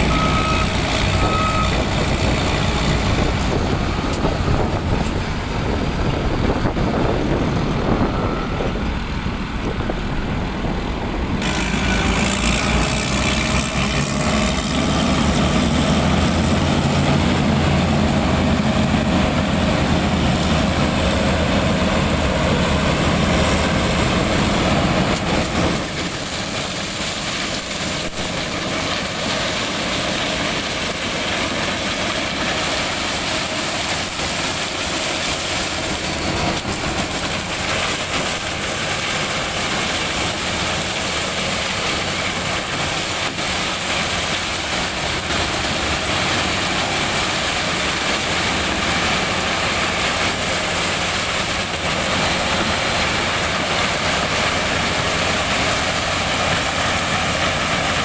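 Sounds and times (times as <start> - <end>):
tractor engine under load: 0.0 - 58.0.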